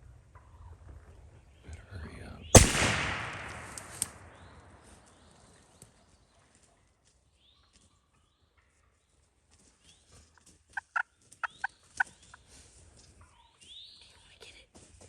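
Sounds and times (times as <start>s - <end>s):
songbirds chirping: 1.0s - 6.4s, 13.2s - 14.7s.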